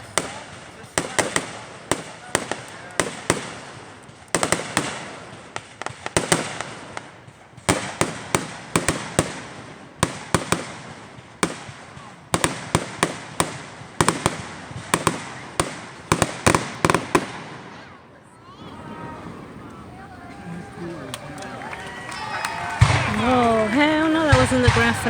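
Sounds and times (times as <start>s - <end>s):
fireworks bangs: 0.0s - 25.0s.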